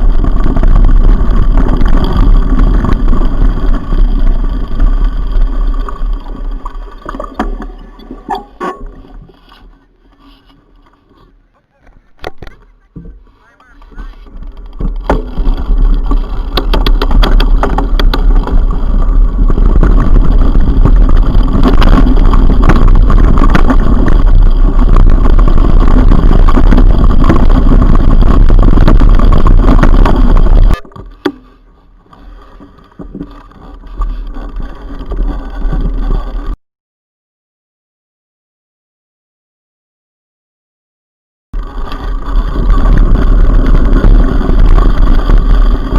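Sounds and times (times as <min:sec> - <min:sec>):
bike knocks and rattles: 0:00.0 - 0:09.6, 0:14.0 - 0:36.6
wind rumble on microphone: 0:00.0 - 0:36.6, 0:41.6 - 0:45.9.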